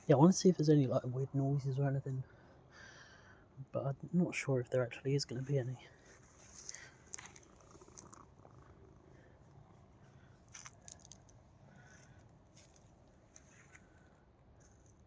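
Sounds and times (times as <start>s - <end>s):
soft clicks and rustles: 5.9s - 8.8s, 10.1s - 15.0s.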